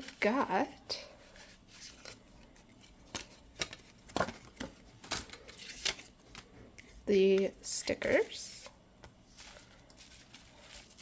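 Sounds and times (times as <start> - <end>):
paper and plastic rustling: 9.3 - 11.0.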